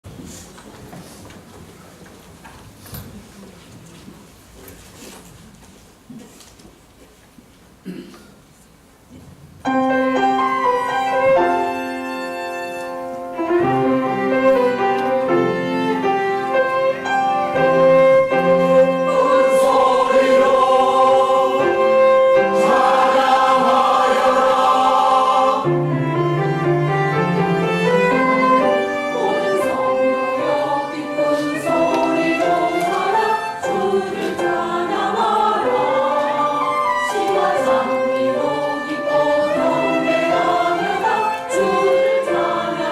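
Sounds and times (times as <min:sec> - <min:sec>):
church choir singing: 0:09.9 - 0:42.9.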